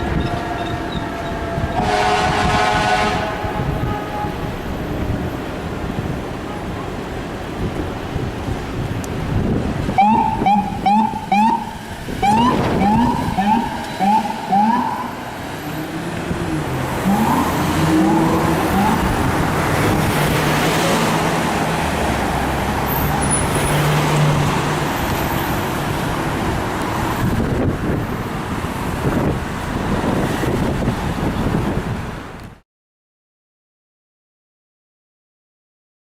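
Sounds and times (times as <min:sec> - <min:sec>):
engine and traffic noise: 0:00.0 - 0:32.6
air horn blast: 0:00.2 - 0:04.7, 0:10.0 - 0:15.3
electronic siren yelping: 0:10.0 - 0:15.3, 0:17.0 - 0:19.2.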